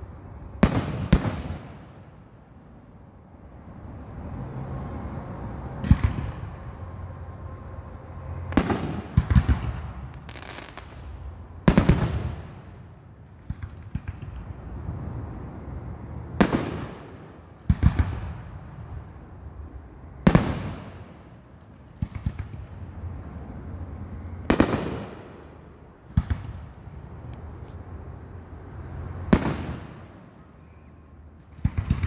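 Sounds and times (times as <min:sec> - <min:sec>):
firework booms with rolling echo: 0:00.6 - 0:02.1, 0:08.5 - 0:14.6, 0:16.4 - 0:19.0, 0:20.2 - 0:22.8, 0:24.5 - 0:26.7, 0:29.3 - 0:30.3, 0:31.5 - 0:32.0.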